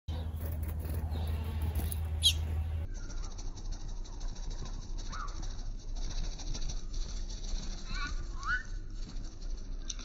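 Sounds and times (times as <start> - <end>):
low steady hum: 0.1 - 10.0
sharp high bird chirp: 2.1 - 3.3
faint bird calls: 5.0 - 5.6.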